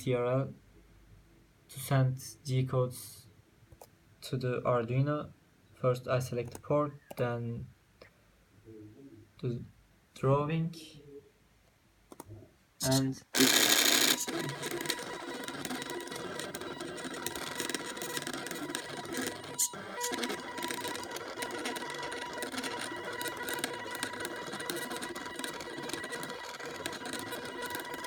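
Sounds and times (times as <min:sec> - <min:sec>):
stepper motors buzzing whine: 0:13.4 - 0:28.0.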